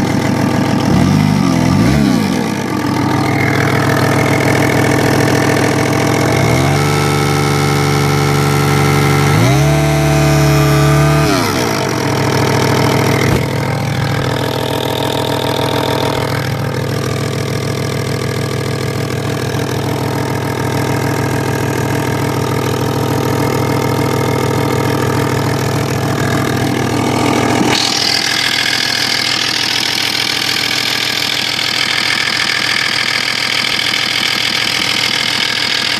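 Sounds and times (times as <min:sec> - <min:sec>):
chirring engine noise: 0:00.0 - 0:18.6
car engine revving and idling: 0:00.0 - 0:35.9.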